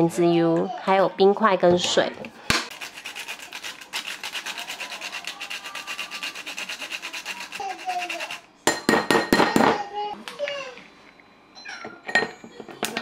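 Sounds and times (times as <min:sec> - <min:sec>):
quick scraping strokes: 0:02.7 - 0:08.4.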